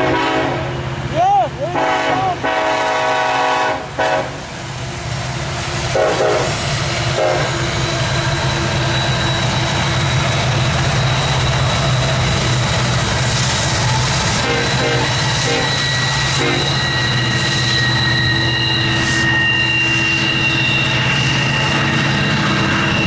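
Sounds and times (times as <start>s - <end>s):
train horn: 0.0s - 0.8s, 1.7s - 4.5s, 5.9s - 7.6s, 14.4s - 23.0s
diesel locomotives passing: 0.0s - 23.0s.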